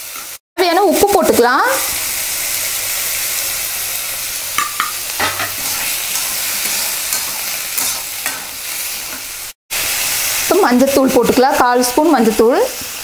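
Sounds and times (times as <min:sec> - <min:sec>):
potatoes sizzling in hot oil: 0:00.0 - 0:13.0
steel spatula scraping pan: 0:04.7 - 0:09.3.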